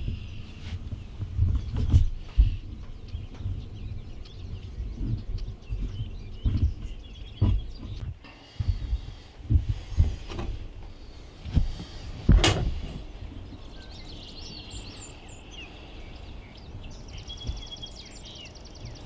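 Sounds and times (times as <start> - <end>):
dull bumps and knocks: 0.0 - 13.8, 16.7 - 17.8
small birds chirping: 0.0 - 19.0.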